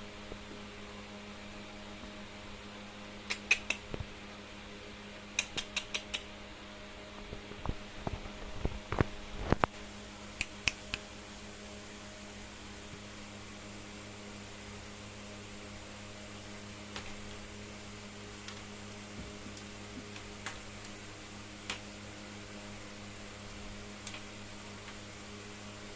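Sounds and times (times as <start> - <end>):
electrical hum: 0.0 - 25.9
sharp thin clicks: 3.3 - 4.0, 5.3 - 6.3, 10.4 - 11.0.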